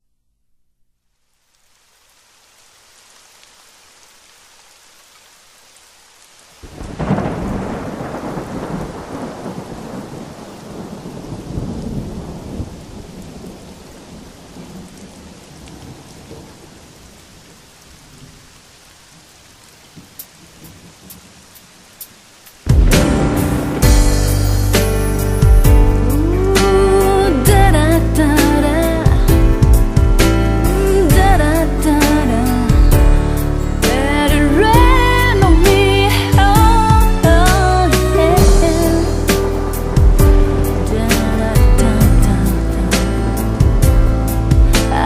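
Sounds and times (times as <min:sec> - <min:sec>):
rain falling: 0:01.1 - 0:45.0
thunder clap and rumble: 0:06.6 - 0:16.7, 0:22.6 - 0:26.6, 0:27.5 - 0:45.0.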